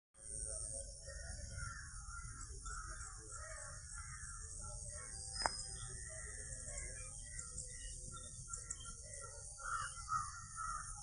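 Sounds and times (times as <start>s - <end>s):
high insect-like hiss: 0.2s - 11.0s
birds calling: 0.3s - 11.0s
sharp click: 5.4s - 5.6s.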